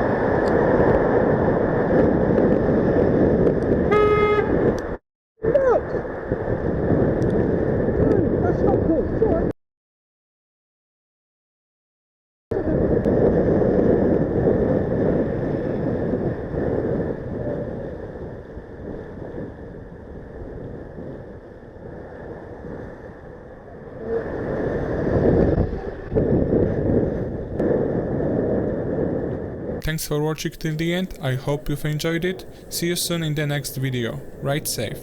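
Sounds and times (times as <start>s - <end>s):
wind rushing over microphone: 0.0s - 9.5s, 12.5s - 35.0s
road and engine noise: 29.8s - 35.0s.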